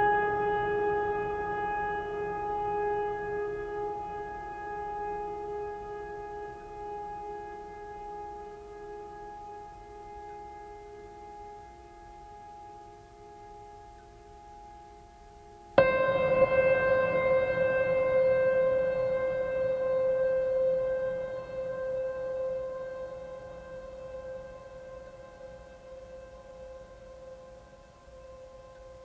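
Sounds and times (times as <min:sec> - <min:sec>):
music of long held notes: 0:00.0 - 0:29.0.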